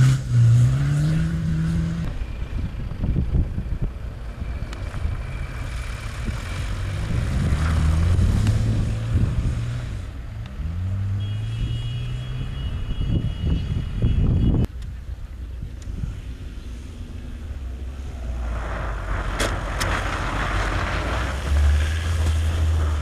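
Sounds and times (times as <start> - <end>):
rally car engine revving: 0.0 - 2.1, 6.0 - 11.2.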